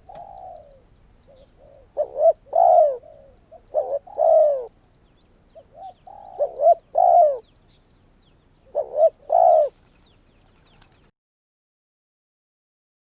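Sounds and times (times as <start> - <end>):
dove cooing: 0.0 - 4.8, 5.6 - 7.6, 8.6 - 11.0.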